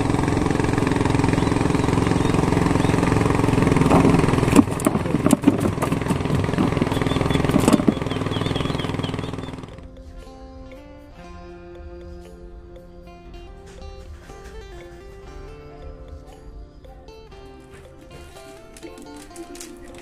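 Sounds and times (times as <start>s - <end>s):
sharp knocks and rattles: 0.0s - 9.8s
small boat engine running: 0.0s - 11.0s.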